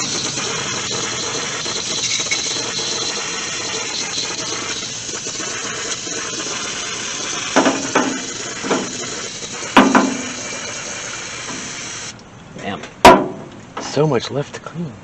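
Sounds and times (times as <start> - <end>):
garden hose spraying water: 0.0 - 12.2
hollow metallic clunks: 9.8 - 10.5, 12.6 - 14.0.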